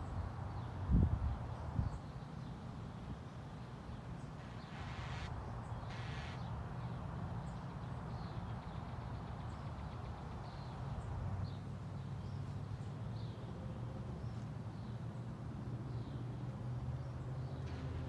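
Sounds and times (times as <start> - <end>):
faint high bird chirps: 4.4 - 6.5
harsh rasping bird calls: 4.4 - 6.5.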